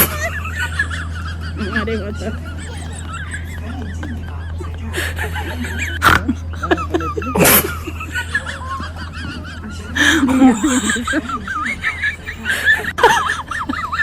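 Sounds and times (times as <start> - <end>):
birds wavering calls: 0.0 - 14.0
steady low hum: 0.0 - 14.0.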